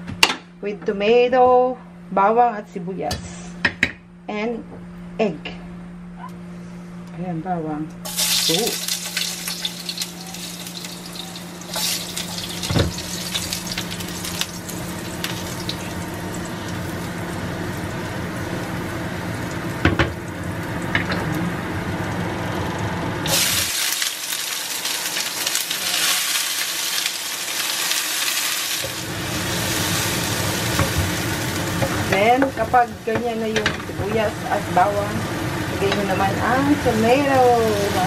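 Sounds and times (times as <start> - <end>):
garlic sizzling in oil: 8.0 - 20.9, 23.2 - 38.0.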